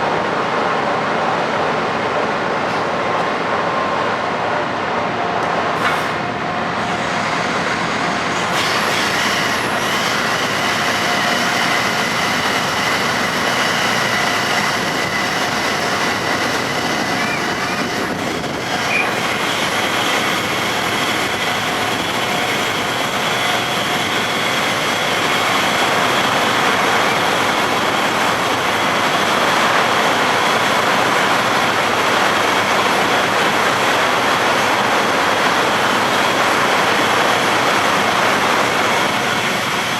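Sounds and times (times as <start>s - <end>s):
ship engines droning: 0.0s - 39.9s.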